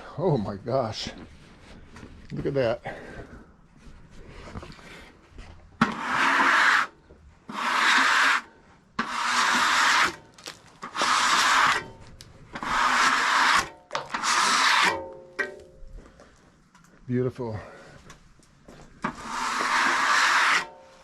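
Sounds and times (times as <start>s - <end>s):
scraping strokes on wood: 5.8s - 15.2s, 19.0s - 21.0s.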